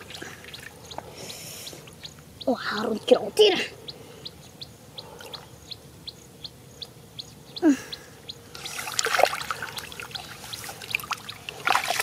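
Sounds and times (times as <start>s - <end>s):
bird chirping: 0.0s - 11.7s
hands splashing in muddy water: 10.9s - 12.0s.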